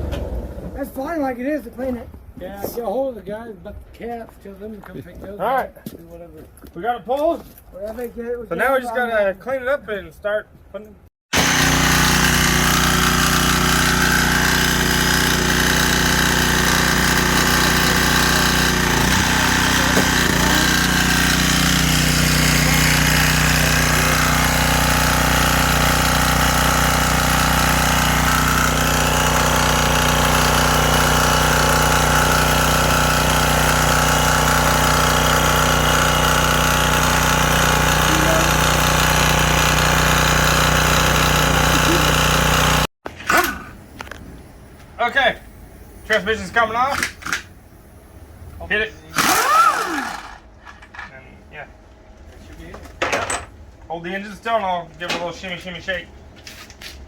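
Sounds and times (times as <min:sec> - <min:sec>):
motor-driven machine running: 0:11.4 - 0:42.9, 0:49.1 - 0:50.5.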